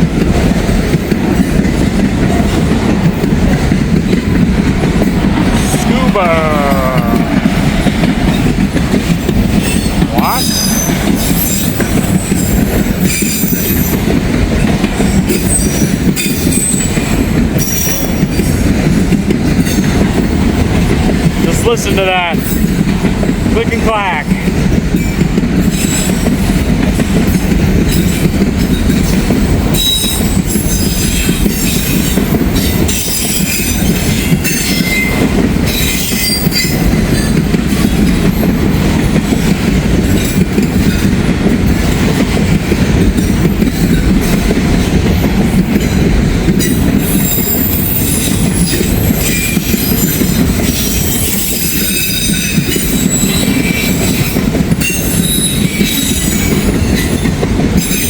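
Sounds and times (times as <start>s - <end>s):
freight train rumble: 0.0s - 58.0s
train wheels clacking over rail joints: 0.0s - 58.0s.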